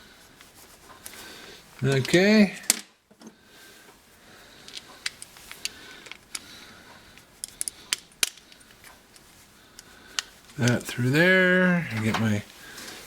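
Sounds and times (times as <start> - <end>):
metal parts clicking and tapping: 4.7 - 6.5, 7.4 - 10.9.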